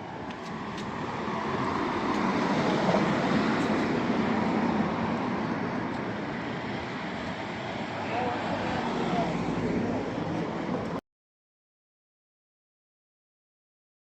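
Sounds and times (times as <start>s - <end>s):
vehicle passing on road: 0.0s - 11.0s.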